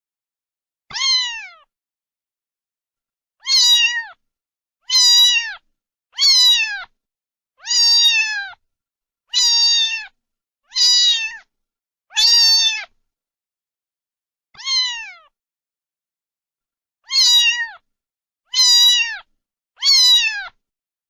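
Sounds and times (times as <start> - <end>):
cat meowing: 0.9 - 1.7, 3.4 - 4.2, 4.8 - 7.0, 7.6 - 8.6, 9.3 - 11.5, 12.1 - 13.0, 14.6 - 15.4, 17.0 - 17.8, 18.5 - 20.6.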